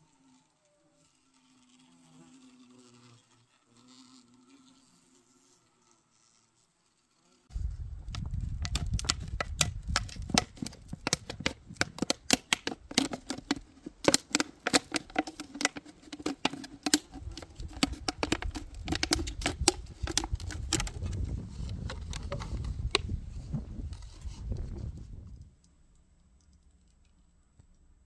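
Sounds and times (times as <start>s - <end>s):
faint buzz of wings: 0.0s - 9.2s
wasps tapping against trap walls: 8.1s - 21.1s.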